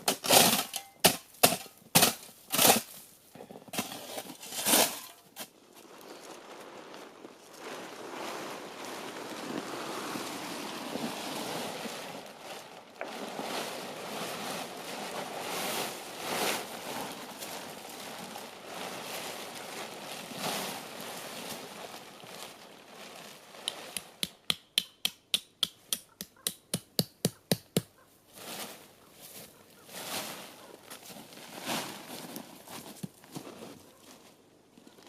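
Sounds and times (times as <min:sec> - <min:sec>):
tent fabric rustling: 0:03.9 - 0:24.2, 0:28.3 - 0:34.4.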